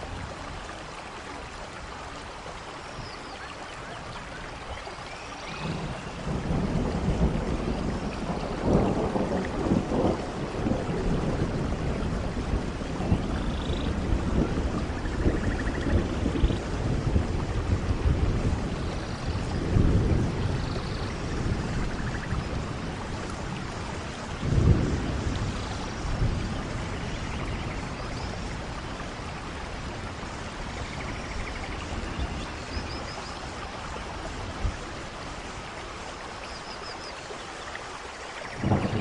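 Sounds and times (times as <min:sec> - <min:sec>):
soft rain falling: 0:00.0 - 0:39.0
distant thunder rumbles: 0:05.5 - 0:36.1, 0:38.4 - 0:39.0.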